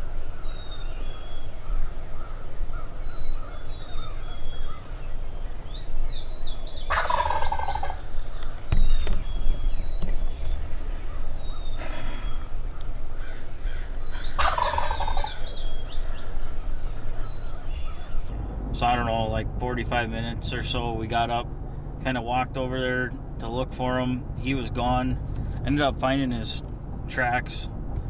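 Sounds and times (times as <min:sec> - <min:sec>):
songbirds chirping: 0:00.0 - 0:18.3
turkey gobbling: 0:00.0 - 0:18.3.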